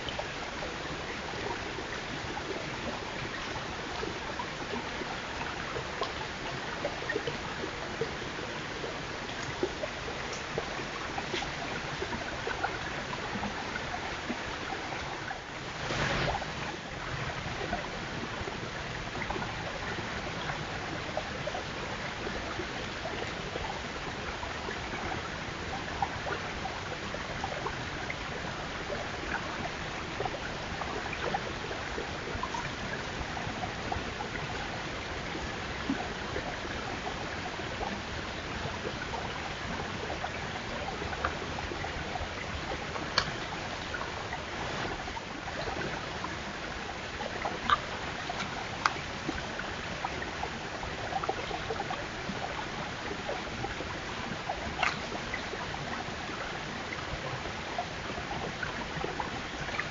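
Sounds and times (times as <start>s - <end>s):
faint clicks: 6.0s - 6.2s, 43.0s - 44.0s, 54.8s - 55.5s
steady rushing noise: 15.6s - 16.9s.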